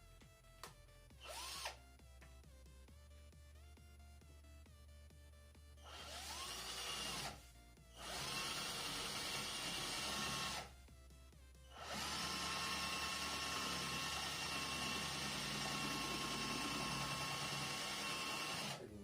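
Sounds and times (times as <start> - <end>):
drill grinding into masonry: 5.9 - 7.4, 8.0 - 10.7, 11.7 - 18.8.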